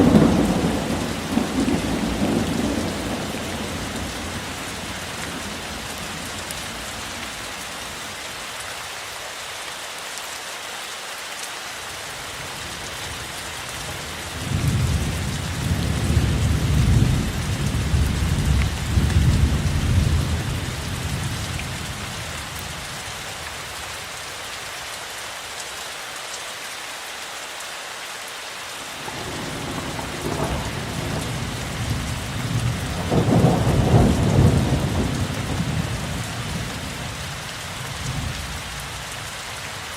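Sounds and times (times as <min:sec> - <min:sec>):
rolling thunder: 0:00.0 - 0:06.4, 0:29.1 - 0:37.1
steady rainfall: 0:00.0 - 0:39.9.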